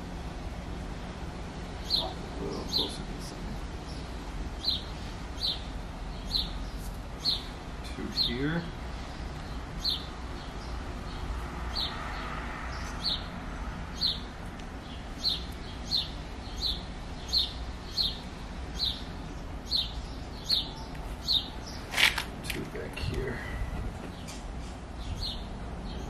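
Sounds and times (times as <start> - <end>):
small bird chirping: 1.8 - 3.0, 3.9 - 8.4, 13.9 - 22.0.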